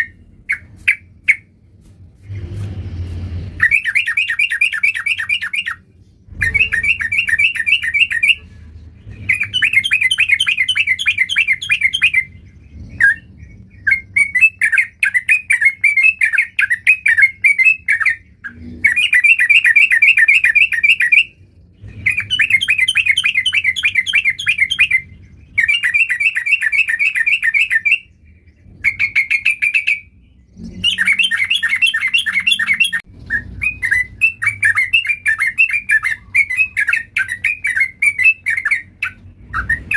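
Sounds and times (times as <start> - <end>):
bulbul singing chattering notes: 30.8 - 39.9.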